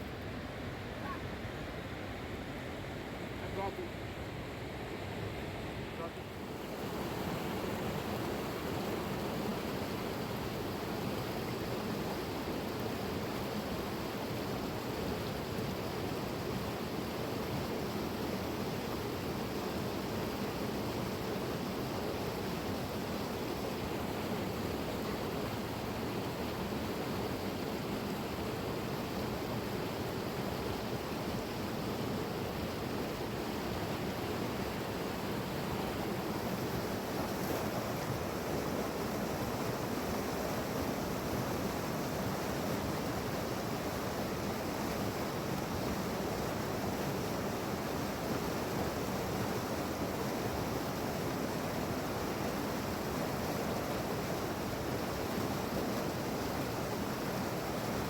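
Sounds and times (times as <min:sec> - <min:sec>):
fast-flowing river rushing: 0:06.4 - 0:58.0.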